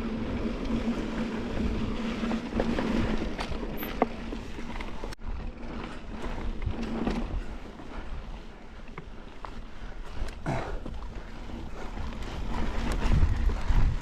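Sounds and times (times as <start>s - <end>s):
bike tyre rumble: 0.0s - 14.0s
bike knocks and rattles: 0.3s - 8.0s
wind noise: 9.6s - 14.0s.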